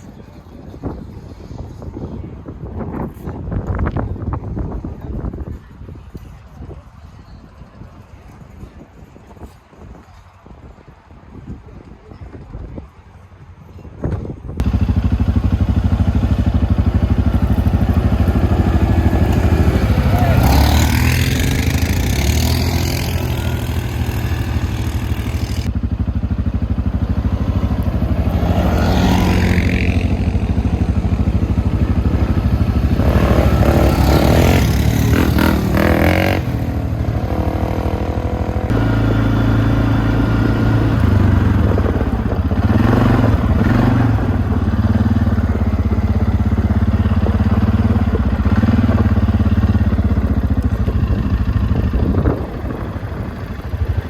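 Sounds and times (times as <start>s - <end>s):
off-road vehicle engine revving: 14.6s - 25.8s, 26.6s - 53.9s.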